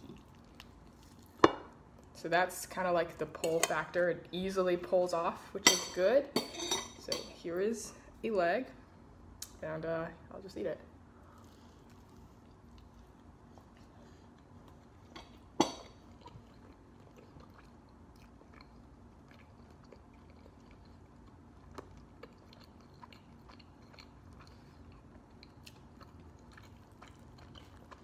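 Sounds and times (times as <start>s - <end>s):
wet chewing sounds: 0.0s - 1.4s, 11.2s - 28.0s
low room hum: 0.0s - 28.0s.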